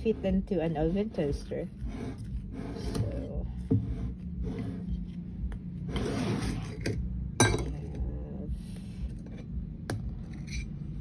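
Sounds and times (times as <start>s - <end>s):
kitchenware clinking and knocking: 7.4s - 7.9s.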